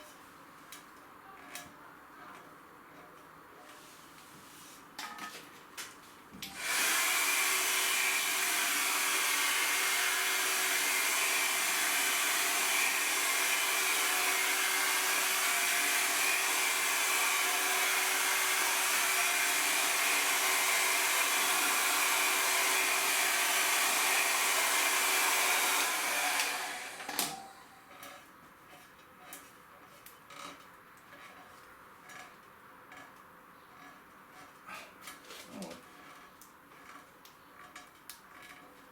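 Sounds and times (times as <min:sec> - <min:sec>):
electric blower running: 0:06.5 - 0:27.8.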